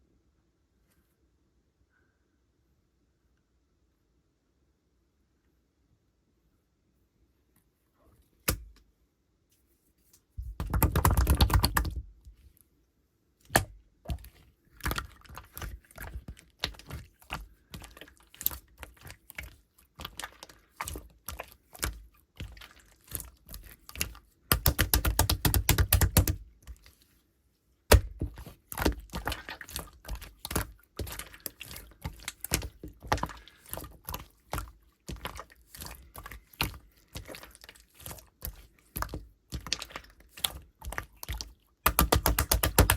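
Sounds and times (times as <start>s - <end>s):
slime squishing with clicking pops: 8.4s - 8.8s, 10.5s - 12.2s, 13.4s - 27.0s, 27.9s - 42.9s.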